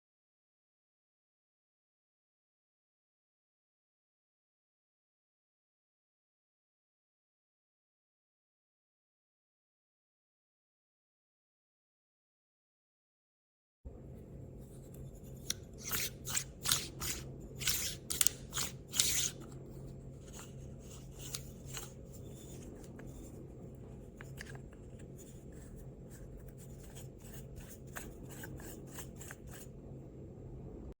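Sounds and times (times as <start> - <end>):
steady low hum: 13.9 - 31.0
handling clicks and scrapes: 14.6 - 29.8.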